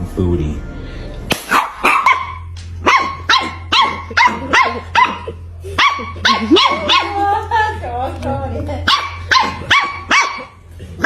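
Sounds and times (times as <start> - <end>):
dog barking: 1.5 - 7.2, 8.8 - 10.6.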